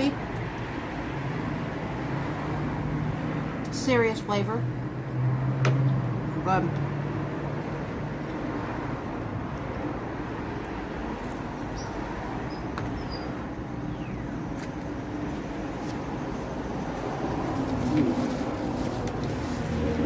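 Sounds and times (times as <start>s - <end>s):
low engine hum: 4.6s - 20.0s.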